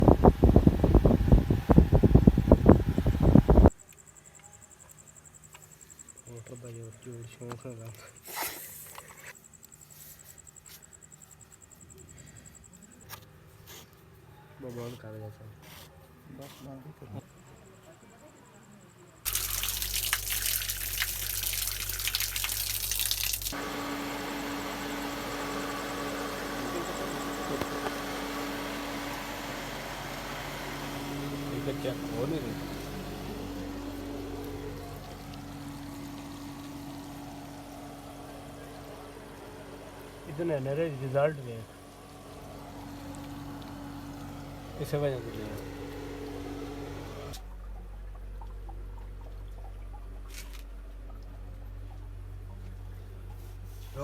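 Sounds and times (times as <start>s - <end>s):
steady mechanical hum: 0.0s - 54.0s
faint water drips: 19.3s - 23.6s
water pouring: 19.3s - 23.6s.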